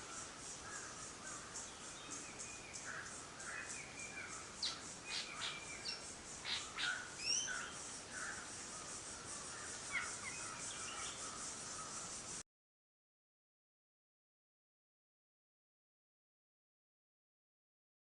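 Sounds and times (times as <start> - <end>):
steady pulsing high hiss: 0.0 - 12.4
birds chirping and whistling: 4.6 - 7.7.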